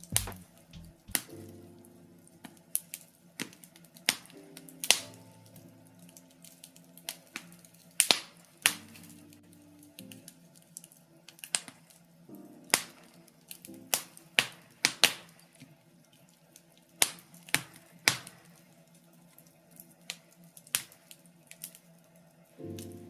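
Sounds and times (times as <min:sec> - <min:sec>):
steady low hum: 0:00.0 - 0:01.6
logs crackling in fireplace: 0:00.0 - 0:23.0.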